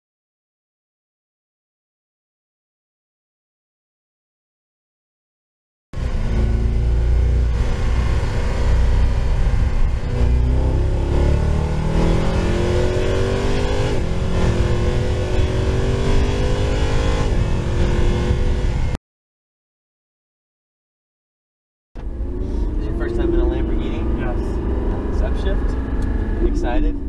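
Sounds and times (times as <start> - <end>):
car engine accelerating: 6.0 - 19.0, 22.0 - 27.0.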